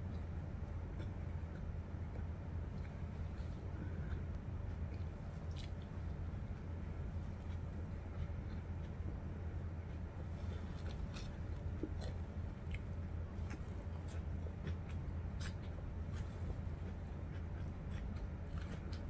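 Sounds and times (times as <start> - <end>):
person chewing food: 0.0 - 19.0
steady low hum: 0.0 - 19.0.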